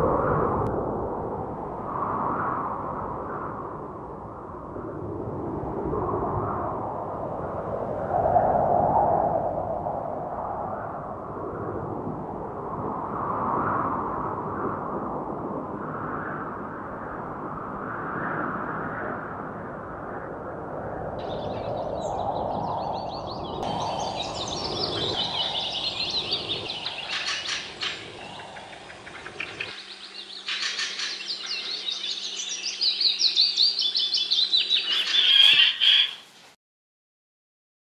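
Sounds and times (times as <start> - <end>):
small birds chirping: 21.2 - 36.5
low outdoor rumble: 23.6 - 31.8.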